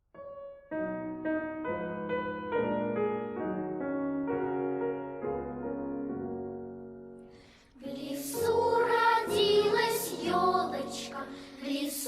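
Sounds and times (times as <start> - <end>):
piano melody over chords: 0.0 - 7.5.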